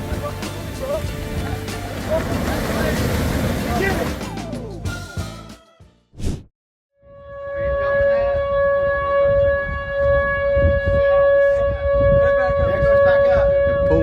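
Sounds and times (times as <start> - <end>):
wind rumble: 0.8 - 4.4, 7.4 - 14.0
warning siren steady pitch: 7.0 - 14.0.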